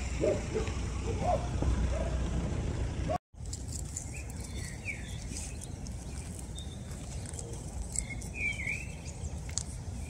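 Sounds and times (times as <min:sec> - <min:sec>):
low background rumble: 0:00.0 - 0:10.0
bird chirps: 0:04.0 - 0:10.0.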